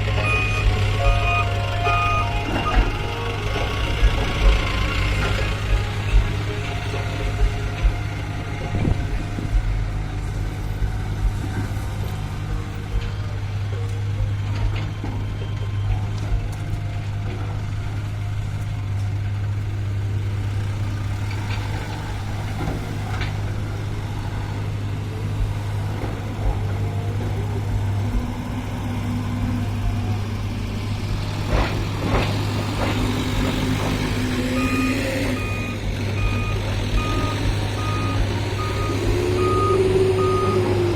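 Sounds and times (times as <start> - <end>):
reversing alarm beeping: 0.0 - 10.6, 33.4 - 40.9
heavy diesel engine rumbling: 0.0 - 40.9
clanks and knocks: 31.0 - 40.0.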